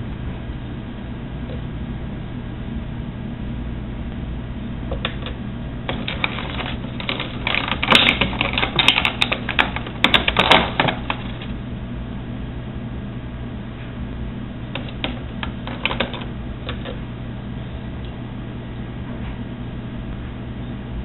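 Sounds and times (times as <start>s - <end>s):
steady low hum: 0.0s - 21.0s
plastic clicks and rattles: 4.9s - 11.5s, 14.8s - 17.0s.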